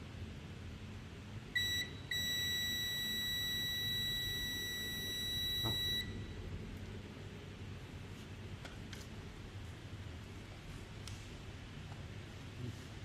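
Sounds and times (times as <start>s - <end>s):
electronic beeper tone: 1.6s - 6.3s.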